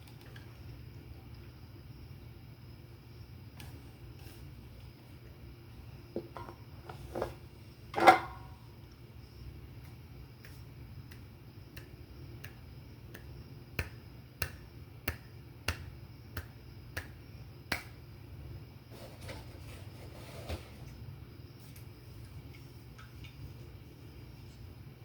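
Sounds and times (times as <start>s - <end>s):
finger snapping: 9.8s - 18.0s.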